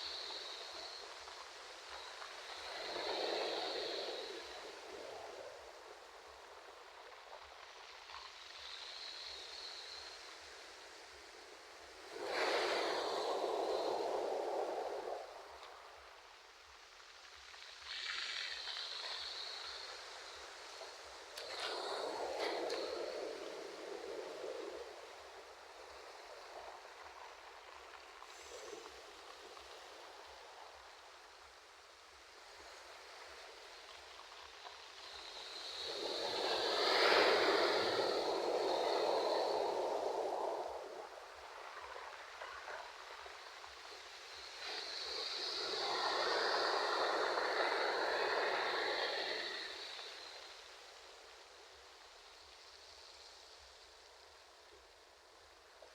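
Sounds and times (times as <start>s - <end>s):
ocean surf washing: 0.0s - 7.0s, 8.8s - 16.1s, 17.9s - 31.0s, 34.7s - 51.4s.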